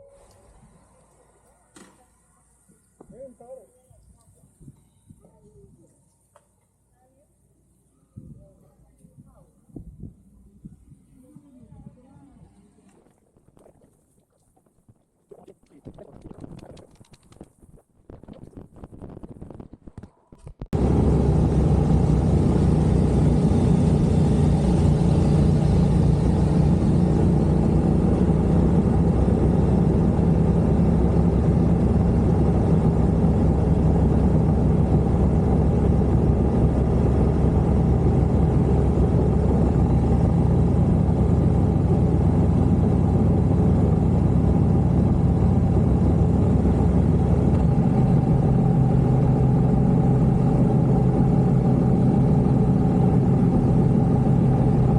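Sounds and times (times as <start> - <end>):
vehicle engine droning: 20.8 - 54.9.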